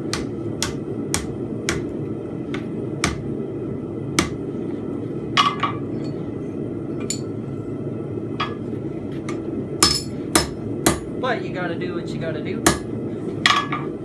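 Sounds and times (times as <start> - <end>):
hammer striking metal on anvil: 0.0 - 1.9, 9.8 - 11.1, 12.7 - 12.9.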